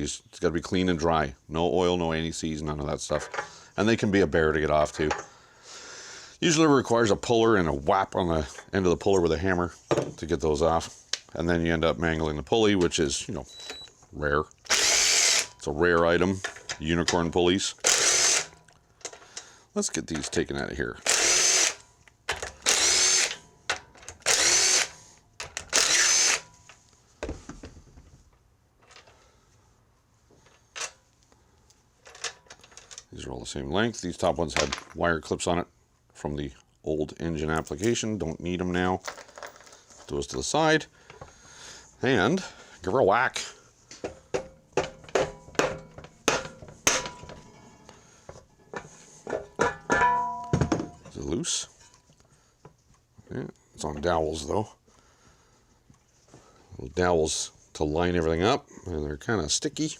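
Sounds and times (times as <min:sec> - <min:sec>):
cordless drill whining: 0:14.7 - 0:15.5, 0:17.9 - 0:18.6, 0:21.1 - 0:21.8, 0:22.6 - 0:23.4, 0:24.2 - 0:25.0, 0:25.6 - 0:26.5.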